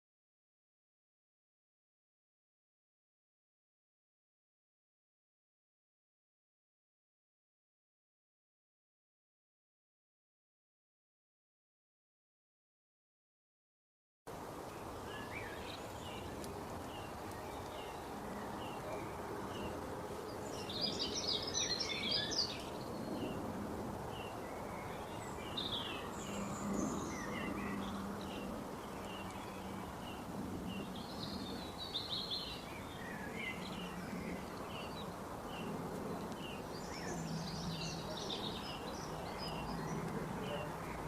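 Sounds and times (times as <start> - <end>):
outdoor background noise: 14.3 - 41.0
small birds chirping and twittering: 14.3 - 41.0.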